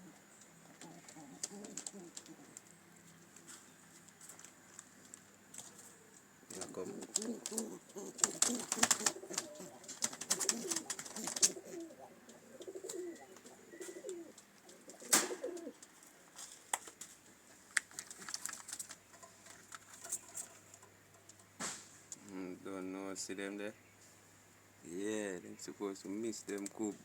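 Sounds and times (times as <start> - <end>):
pigeons cooing: 0.0 - 3.7, 5.6 - 16.0.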